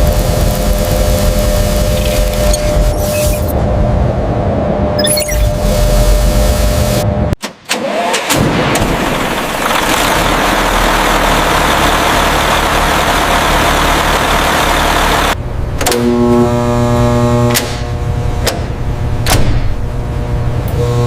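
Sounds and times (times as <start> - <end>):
large engine running loudly: 9.1 - 15.4.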